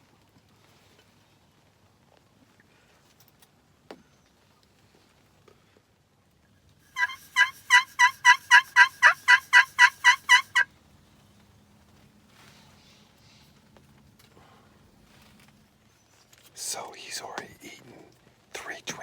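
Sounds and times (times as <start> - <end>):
turkey yelps: 7.0 - 10.6.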